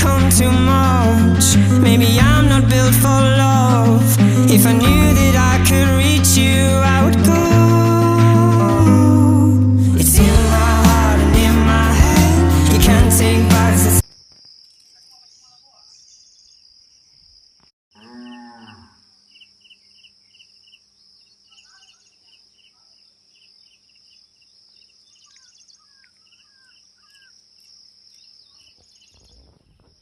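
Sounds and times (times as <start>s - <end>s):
bird-like chirps: 14.1s - 17.4s, 19.2s - 30.0s.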